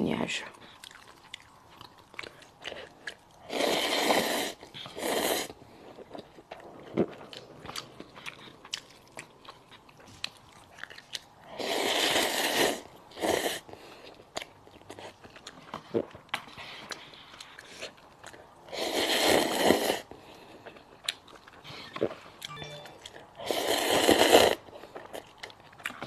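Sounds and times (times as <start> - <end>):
soft chewing clicks: 0.6 - 3.4, 5.8 - 11.4, 14.0 - 18.6, 20.2 - 21.7
noodles slurped: 2.2 - 5.6.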